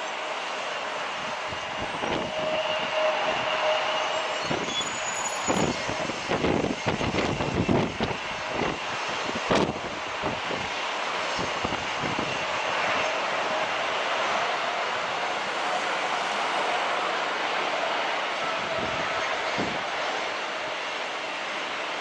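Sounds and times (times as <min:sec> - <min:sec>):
jet engine noise: 0:00.0 - 0:22.0
wind buffeting microphone: 0:01.1 - 0:03.8, 0:05.5 - 0:16.4, 0:18.5 - 0:20.1.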